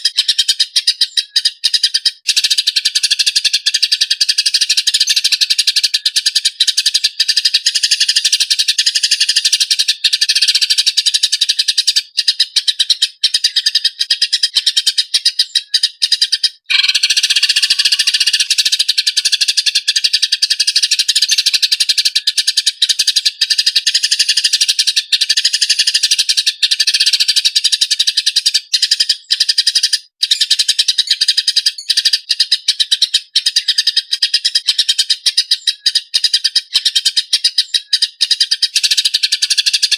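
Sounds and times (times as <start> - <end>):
songbird trilling and chattering: 0.0 - 39.9.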